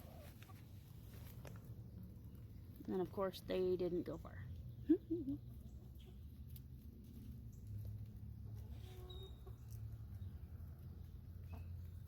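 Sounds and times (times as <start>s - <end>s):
hens clucking: 0.0s - 0.8s.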